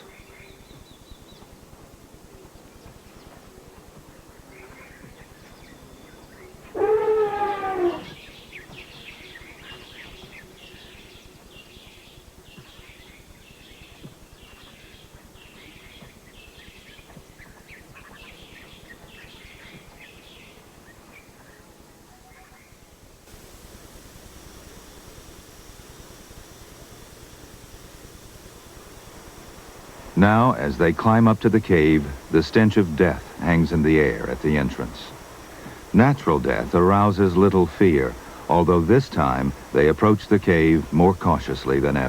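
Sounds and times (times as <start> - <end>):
faint background hiss: 0.0 - 42.0
elephant trumpeting: 6.7 - 8.2.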